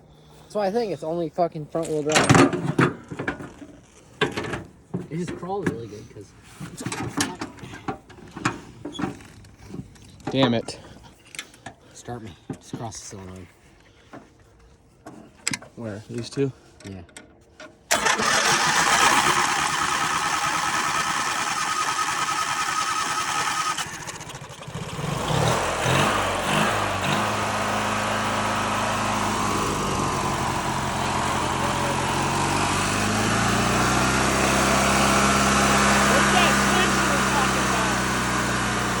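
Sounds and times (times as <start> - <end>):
lawn mower engine running: 17.9 - 39.0
starter motor whining: 17.9 - 39.0.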